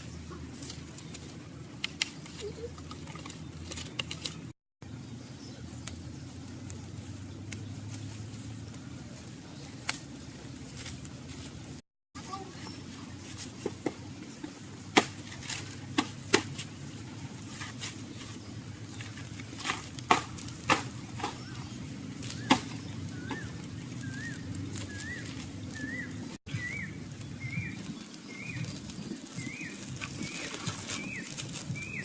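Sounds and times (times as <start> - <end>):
bird calling: 21.0 - 32.0.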